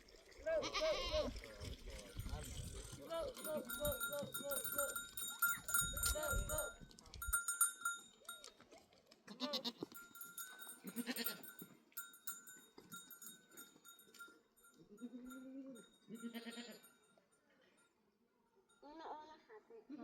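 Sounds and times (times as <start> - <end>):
herd animals bleating: 0.4 - 1.4, 9.3 - 10.2, 10.8 - 11.6, 15.0 - 16.9
livestock bells clinking: 1.9 - 8.8, 9.6 - 19.2.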